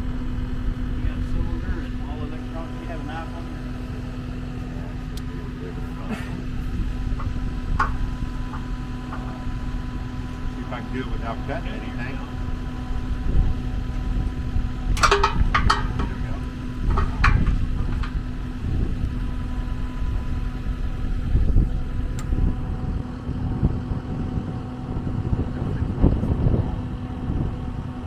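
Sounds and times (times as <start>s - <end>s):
engine idling: 0.0s - 28.0s
metallic clicks and clanks: 14.9s - 18.4s.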